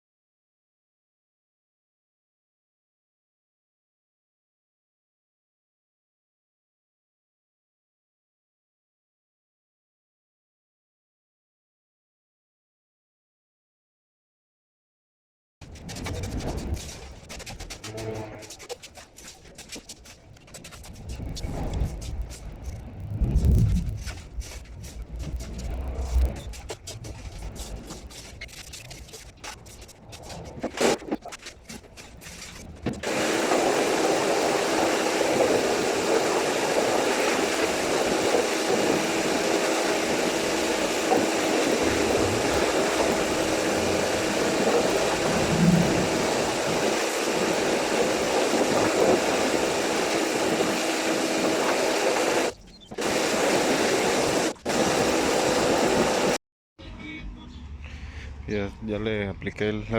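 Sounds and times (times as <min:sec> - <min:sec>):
electric polishing machine: 0:33.0 - 0:45.4, 0:46.0 - 0:56.4.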